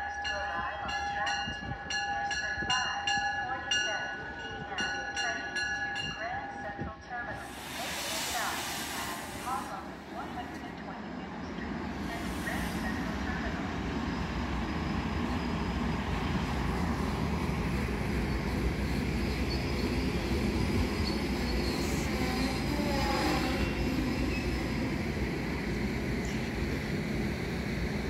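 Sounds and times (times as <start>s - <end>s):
train wheels rumbling on rail: 0.8s - 28.0s.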